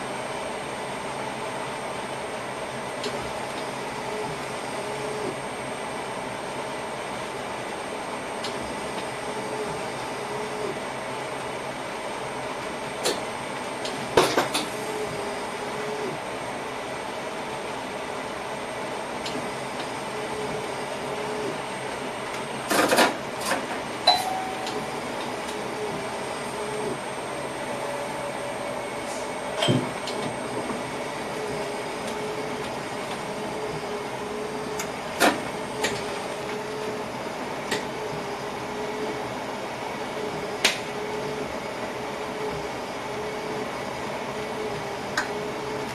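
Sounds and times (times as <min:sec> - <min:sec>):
train running along track: 0:10.9 - 0:42.8.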